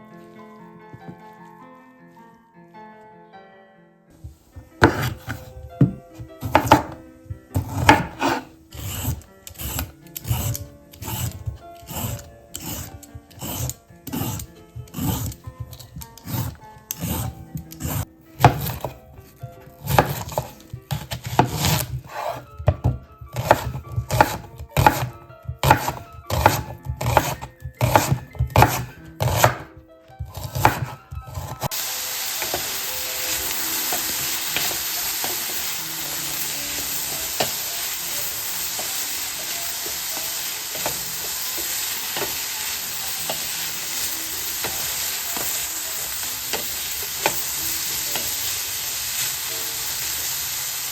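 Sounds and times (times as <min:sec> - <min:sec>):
oil sizzling in frying pan: 0:04.3 - 0:17.2, 0:30.4 - 0:50.9
vegetables scraped on grater: 0:04.3 - 0:19.0, 0:19.6 - 0:50.2.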